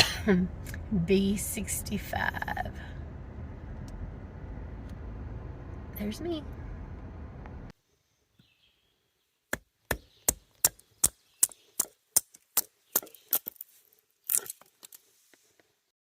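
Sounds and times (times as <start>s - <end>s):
sharp chopping strikes: 9.5s - 13.2s.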